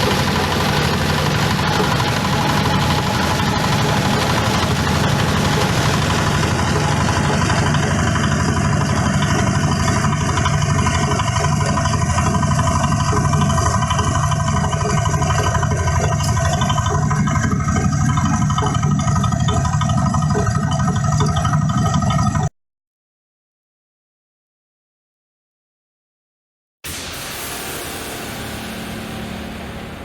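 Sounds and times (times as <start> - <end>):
grinding machine droning: 0.0 - 22.5, 26.9 - 30.0
hiss: 26.9 - 30.0.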